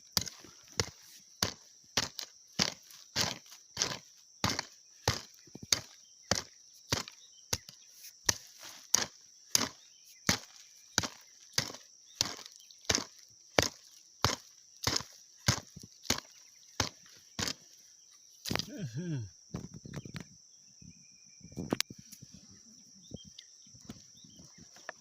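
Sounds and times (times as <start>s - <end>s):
digging tool chopping soil: 0.0s - 17.7s, 18.4s - 18.9s.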